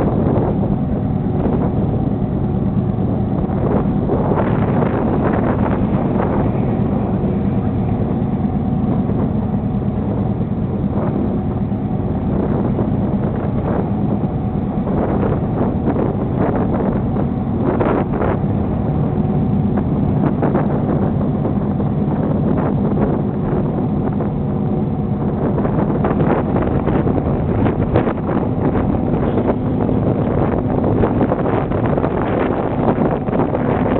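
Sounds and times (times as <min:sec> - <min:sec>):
boat engines droning: 0:00.0 - 0:33.9
wind on microphone: 0:00.0 - 0:33.9.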